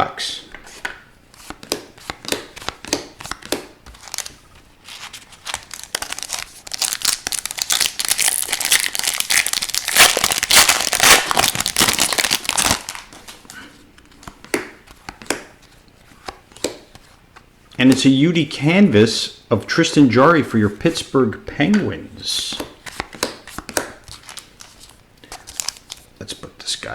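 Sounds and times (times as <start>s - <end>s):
wrapper tearing and crinkling: 4.0s - 13.2s, 24.1s - 26.0s.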